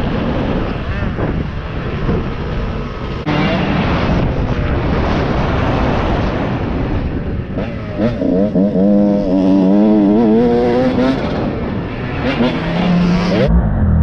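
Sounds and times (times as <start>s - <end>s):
wind rushing on microphone: 0.0s - 13.5s
dirt bike engine revving: 7.4s - 13.5s.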